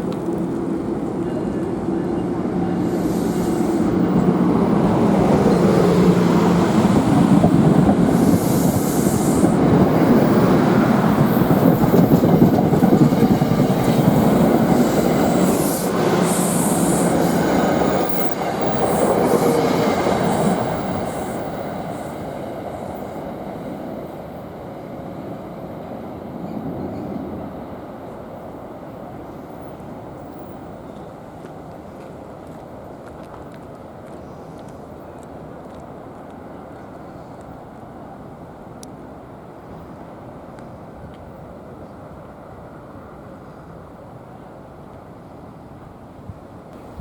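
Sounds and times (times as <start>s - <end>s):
train wheels on rails: 0.0s - 43.8s
train wheels squealing: 2.7s - 7.4s, 8.0s - 22.4s.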